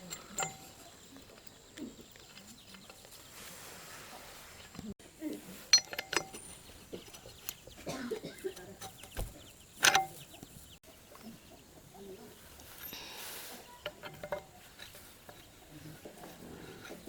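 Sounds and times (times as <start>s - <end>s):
knocks and clinks: 0.0s - 1.0s, 5.7s - 7.1s, 8.1s - 10.2s, 13.8s - 15.5s
chickens clucking: 0.0s - 17.0s.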